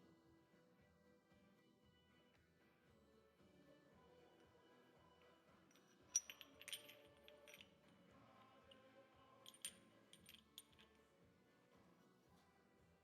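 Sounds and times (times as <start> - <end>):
metal parts clinking: 5.7 - 7.8, 9.5 - 10.9.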